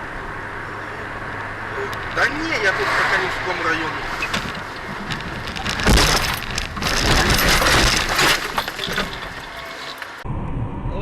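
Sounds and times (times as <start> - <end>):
car crash impact: 2.1 - 10.2
glass and debris clattering: 4.2 - 10.2.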